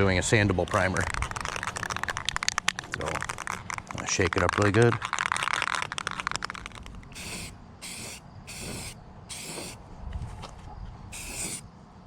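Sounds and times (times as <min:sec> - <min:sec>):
spray can ball rattling: 0:00.9 - 0:09.8, 0:11.1 - 0:11.6
aerosol spray hissing: 0:07.1 - 0:09.8, 0:11.1 - 0:11.6.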